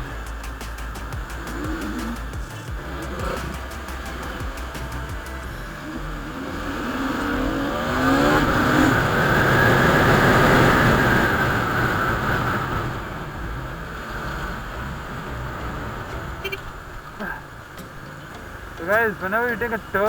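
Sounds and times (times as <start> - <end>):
motorcycle engine accelerating: 0.0 - 20.0
wind noise while riding: 5.1 - 18.8.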